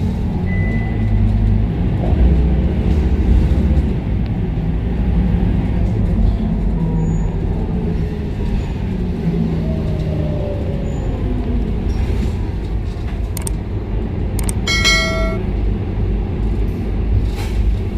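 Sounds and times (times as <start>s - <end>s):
bus diesel engine rumble: 0.0s - 14.5s, 15.4s - 17.9s
clicks: 13.4s - 13.6s, 14.4s - 15.4s
short electronic chime: 14.4s - 15.4s.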